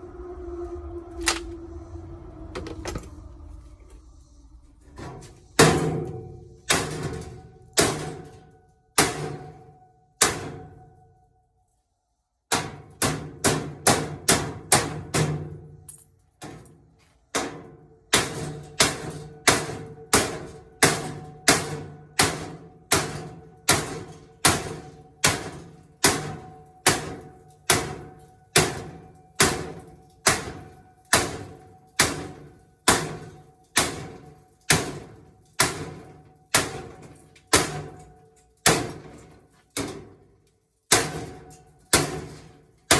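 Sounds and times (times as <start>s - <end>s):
hammer ringing on metal: 5.6s - 10.8s, 18.2s - 38.0s.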